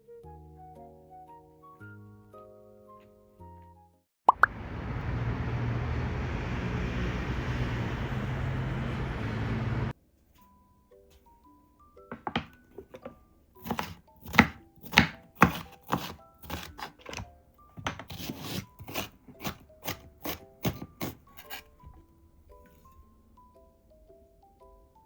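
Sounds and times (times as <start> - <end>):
soft background music: 0.0 - 4.0, 8.4 - 25.0
knife chopping on cutting board: 13.6 - 17.2, 17.8 - 21.6.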